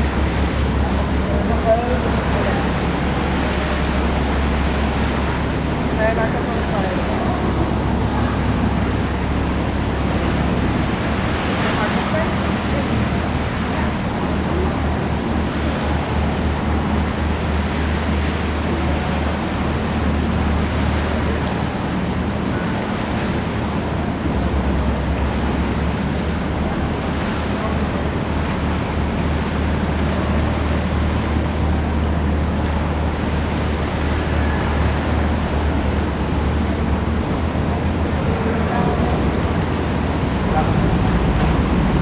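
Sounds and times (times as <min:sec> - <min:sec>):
boat engine droning: 0:00.0 - 0:42.0
rushing water: 0:00.0 - 0:42.0
wind buffeting microphone: 0:35.1 - 0:42.0.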